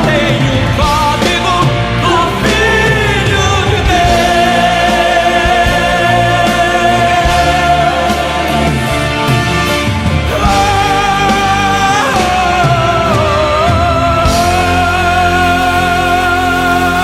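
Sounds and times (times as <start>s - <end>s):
gospel singer with band: 0.0s - 17.0s.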